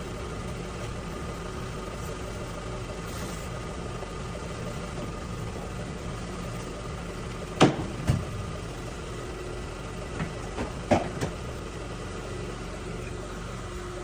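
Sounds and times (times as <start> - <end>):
engine idling hum: 0.0 - 14.0
sharp knocks: 7.6 - 8.3.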